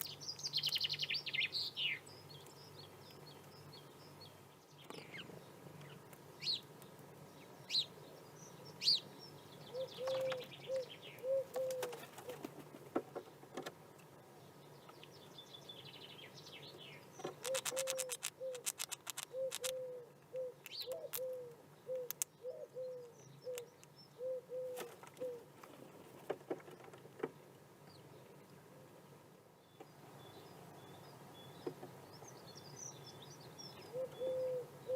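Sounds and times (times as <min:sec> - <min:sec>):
dove cooing: 0:09.7 - 0:12.6, 0:17.2 - 0:25.6, 0:33.9 - 0:34.9
high bird chirps: 0:17.2 - 0:24.3
rapid sharp clicks: 0:17.4 - 0:19.8.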